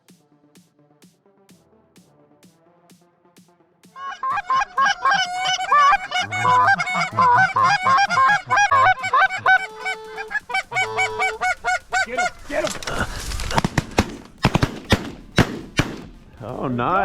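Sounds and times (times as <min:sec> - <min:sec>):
geese honking: 0:04.0 - 0:16.4.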